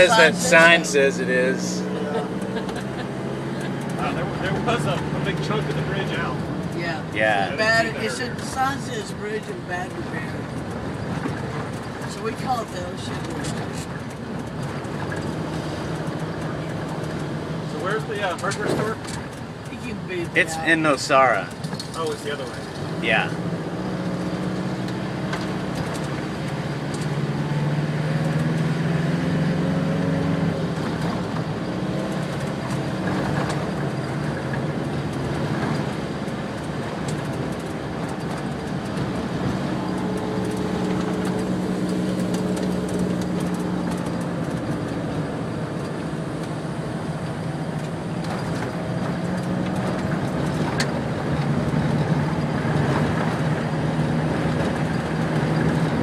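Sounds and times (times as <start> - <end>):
car engine hum: 0.0 - 56.0
tyre and road noise: 0.0 - 56.0
clicks and knocks from road: 10.4 - 19.5, 21.5 - 23.0, 30.7 - 46.6, 47.7 - 53.6.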